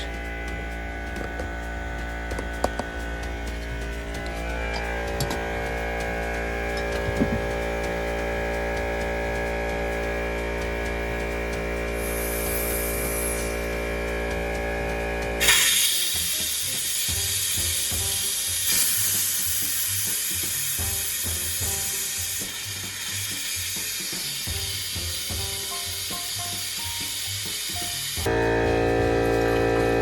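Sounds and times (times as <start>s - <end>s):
compressed air hissing from pipe: 3.4s - 28.3s
steady hum: 28.3s - 30.0s.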